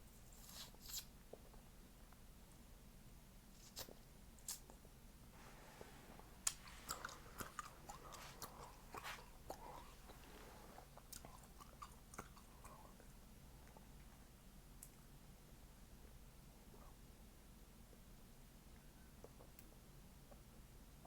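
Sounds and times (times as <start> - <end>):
person chewing gum: 6.4 - 14.1.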